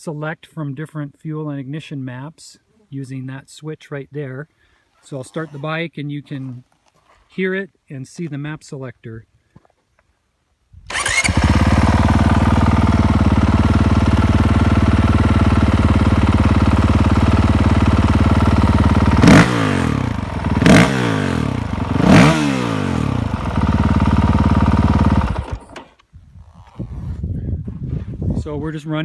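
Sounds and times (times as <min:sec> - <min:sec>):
motorcycle engine idling and revving: 0:10.9 - 0:27.2.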